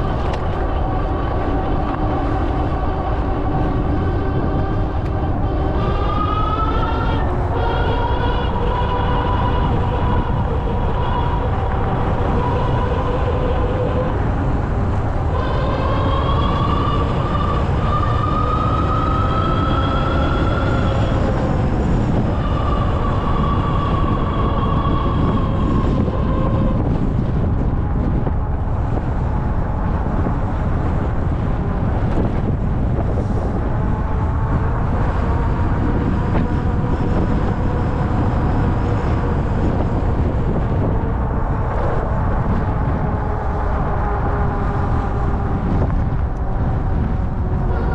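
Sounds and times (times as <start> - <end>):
electric motor whine: 0.0 - 31.0
wind rumble on microphone: 0.0 - 47.9.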